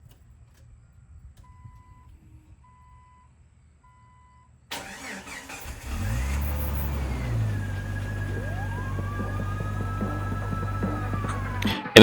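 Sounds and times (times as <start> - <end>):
low rumble: 7.0 - 11.8.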